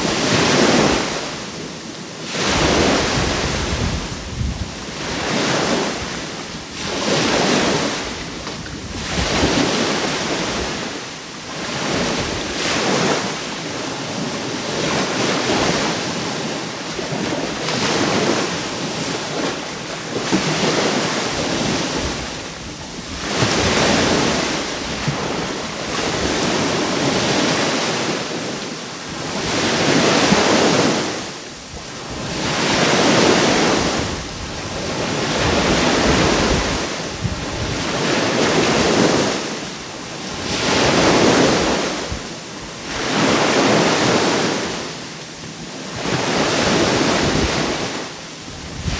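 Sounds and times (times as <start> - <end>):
sea waves breaking on shore: 0.0 - 48.9
wind buffeting microphone: 2.4 - 10.9, 29.2 - 39.4, 46.0 - 48.9.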